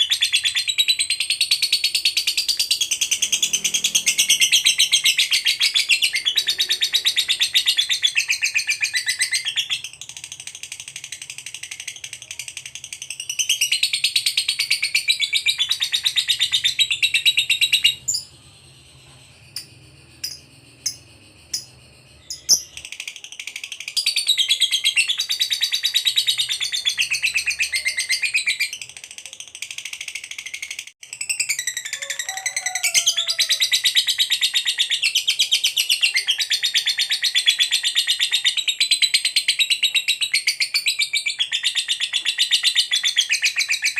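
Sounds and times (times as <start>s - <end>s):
lovebird rattling chatter: 19.6s - 24.2s.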